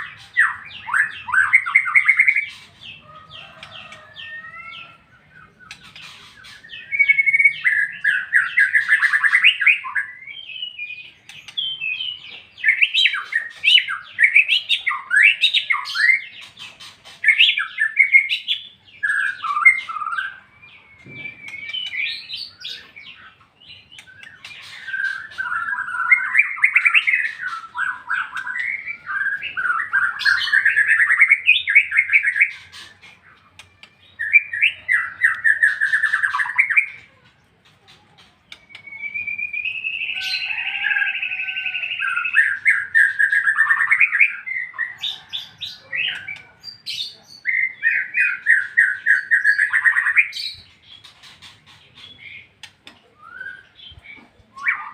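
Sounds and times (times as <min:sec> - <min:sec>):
bird singing whistled phrases: 0:17.3 - 0:22.9, 0:38.5 - 0:45.3, 0:53.2 - 0:53.9.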